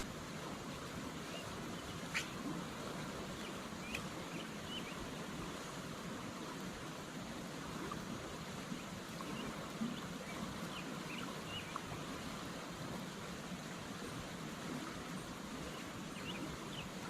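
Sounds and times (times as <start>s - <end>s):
creek water running: 0.0s - 17.0s
faint bird chirps: 1.2s - 2.5s.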